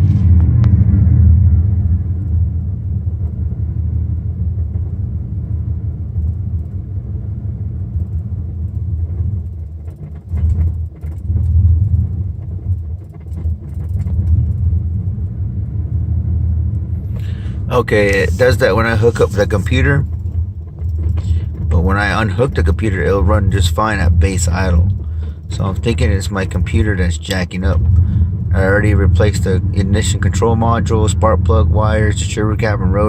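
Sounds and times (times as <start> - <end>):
truck engine idling roughly: 17.0 - 33.0.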